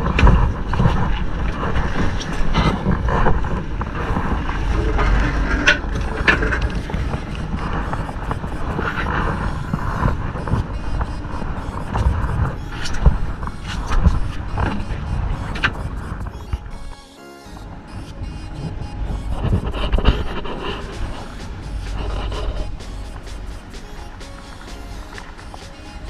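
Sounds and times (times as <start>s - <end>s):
wind rumbling on microphone: 0.0s - 17.0s, 17.6s - 26.0s
fishing boat engine running: 0.0s - 26.0s.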